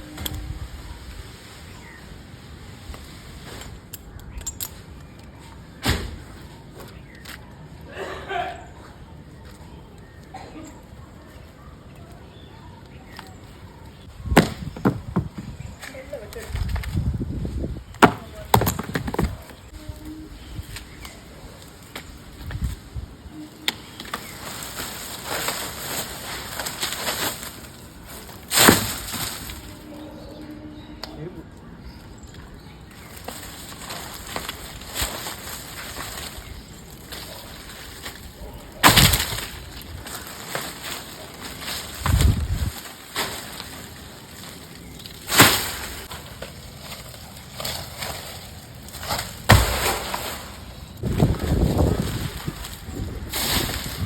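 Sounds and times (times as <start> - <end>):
wood cracking and splintering: 14.2 - 19.7, 32.9 - 54.0
heavy thud of falling limb: 14.3 - 15.6, 49.0 - 50.5.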